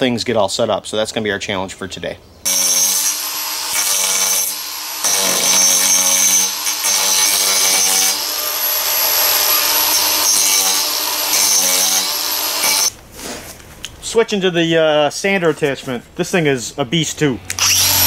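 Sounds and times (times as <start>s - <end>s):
angle grinder carving wood: 2.5s - 12.9s, 17.5s - 18.0s.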